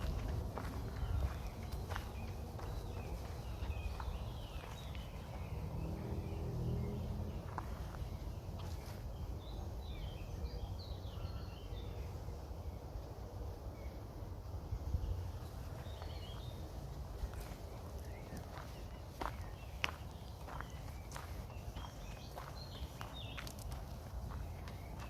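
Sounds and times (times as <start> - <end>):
wind rumbling on microphone: 0.0 - 11.8, 12.6 - 25.0
small birds chirping: 0.0 - 25.0.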